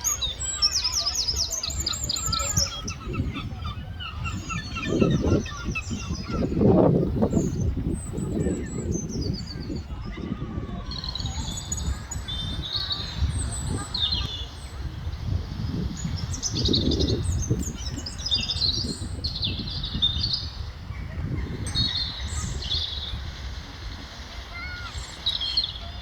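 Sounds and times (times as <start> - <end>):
seagulls calling: 0.0 - 26.0.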